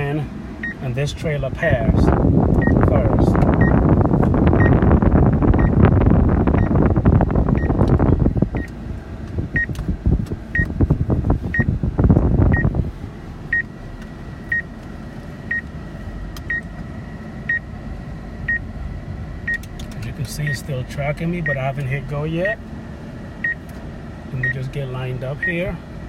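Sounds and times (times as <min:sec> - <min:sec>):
vehicle noise: 0:00.0 - 0:26.0.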